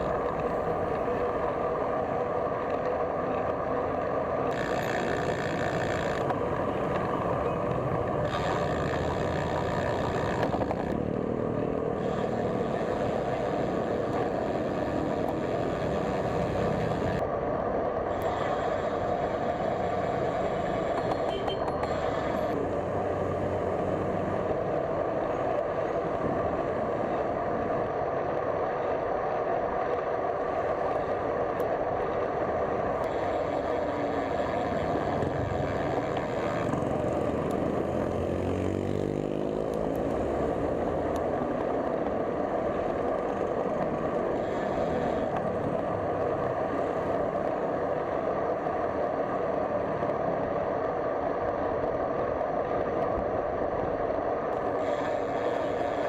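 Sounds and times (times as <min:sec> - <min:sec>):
road traffic noise: 0:00.0 - 0:56.0.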